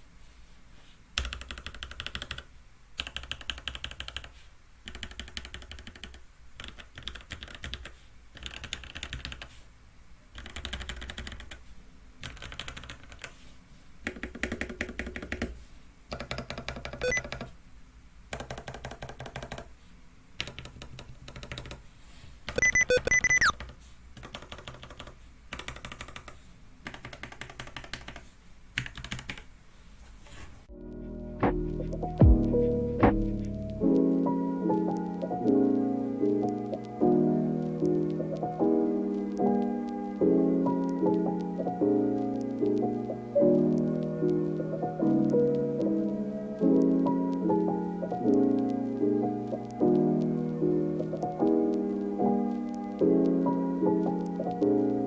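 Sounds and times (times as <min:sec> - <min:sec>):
mechanical keyboard typing: 0:01.2 - 0:09.5, 0:10.3 - 0:11.6, 0:12.2 - 0:13.4, 0:14.0 - 0:17.5, 0:18.3 - 0:19.8, 0:20.4 - 0:21.8, 0:22.5 - 0:29.5.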